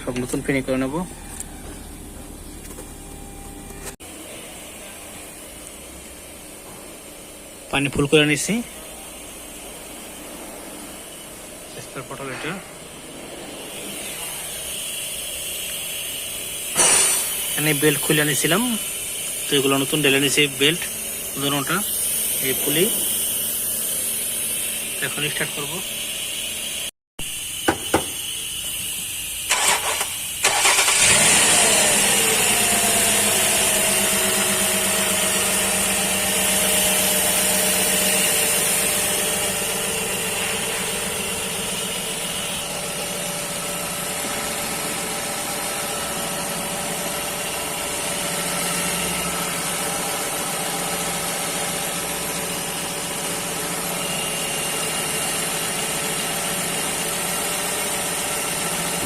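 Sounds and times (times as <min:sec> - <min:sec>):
engine whine: 0:00.0 - 0:04.6, 0:08.3 - 0:26.9, 0:27.7 - 0:59.0
car engine idling: 0:27.8 - 0:59.0
starter cranking engine: 0:29.4 - 0:41.1.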